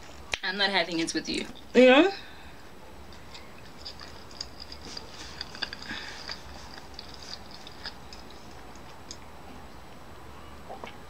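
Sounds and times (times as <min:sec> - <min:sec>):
wet chewing: 0:03.2 - 0:09.3.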